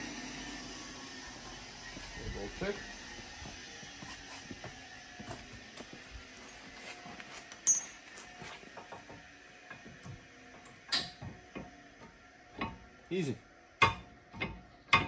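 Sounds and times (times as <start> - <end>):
sharp ringing metal clink: 7.6 - 8.1.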